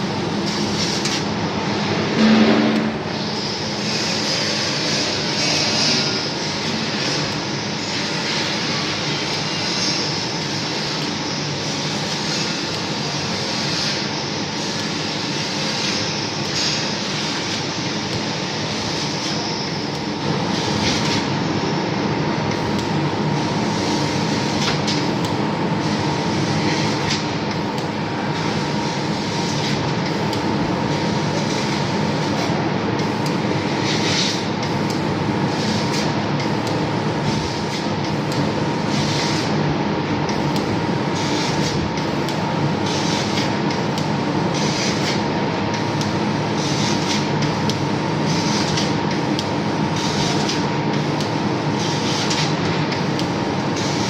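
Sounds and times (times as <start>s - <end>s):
machine tool running with whine: 0.0s - 54.0s.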